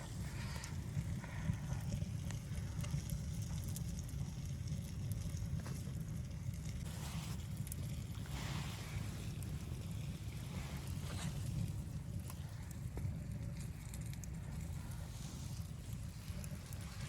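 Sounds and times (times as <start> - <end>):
low rumble of wind: 0.0 - 17.0
wood fire crackling: 0.0 - 17.0.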